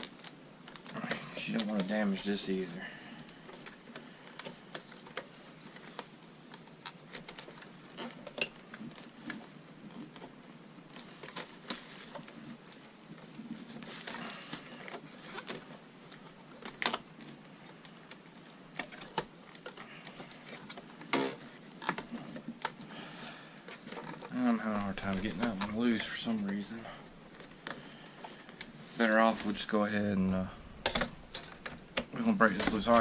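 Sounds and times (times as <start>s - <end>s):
hands and tools clicking on plastic: 3.2s - 22.9s.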